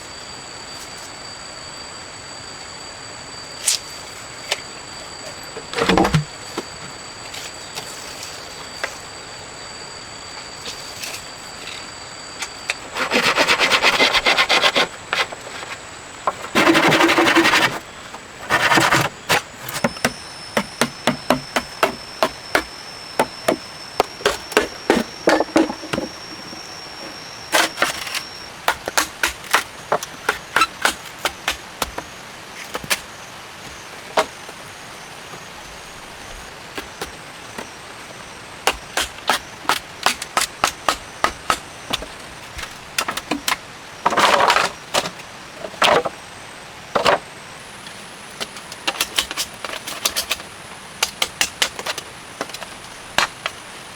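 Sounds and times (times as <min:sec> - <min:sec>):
high insect buzzing: 0:16.3 - 0:31.2
chopping strikes on wood: 0:18.6 - 0:26.6, 0:38.7 - 0:42.1.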